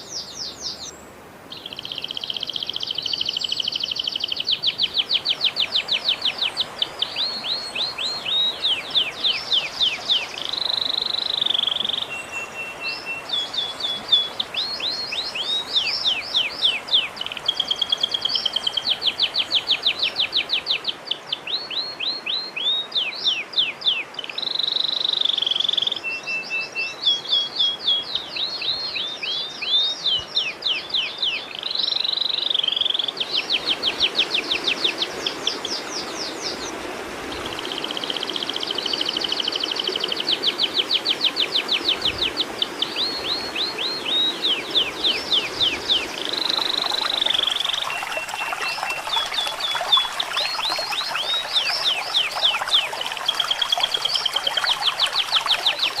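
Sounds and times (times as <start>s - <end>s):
recorded songbird song: 0.0s - 56.0s.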